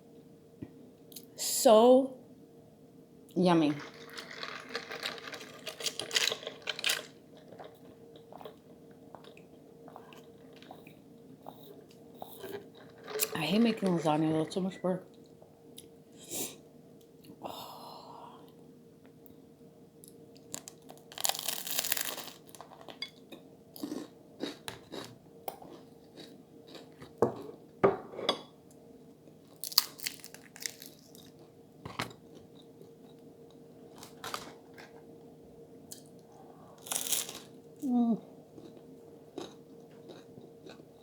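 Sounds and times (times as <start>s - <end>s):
faint steady hum: 0.0s - 41.0s
person chewing and crunching food: 3.8s - 13.4s, 20.1s - 27.7s, 29.5s - 33.2s, 35.9s - 37.9s, 38.5s - 41.0s.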